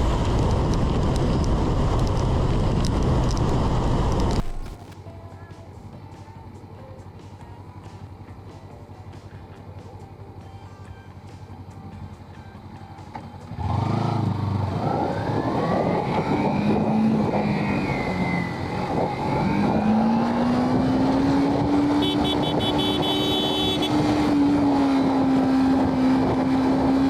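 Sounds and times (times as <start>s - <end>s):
wind and road noise: 0.0s - 5.1s, 11.4s - 27.0s
motorcycle engine running: 0.0s - 17.3s, 18.2s - 27.0s.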